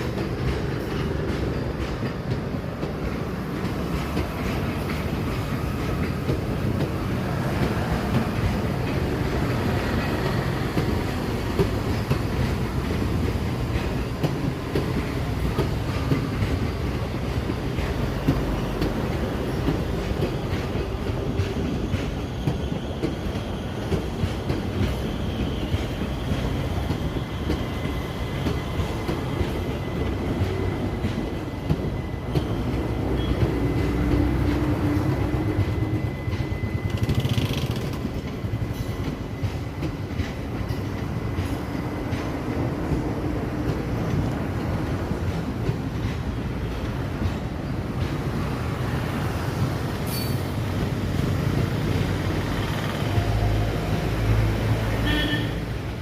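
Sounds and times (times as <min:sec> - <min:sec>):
wheels clacking over rail joints: 0:00.0 - 0:55.4
train rumble: 0:00.0 - 0:56.0.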